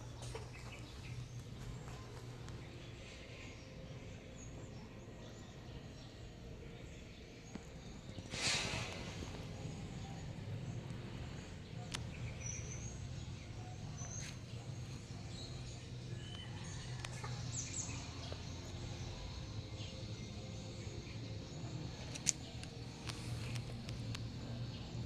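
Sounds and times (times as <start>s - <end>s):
steady low hum: 0.0s - 25.0s
light clicks: 22.0s - 24.4s.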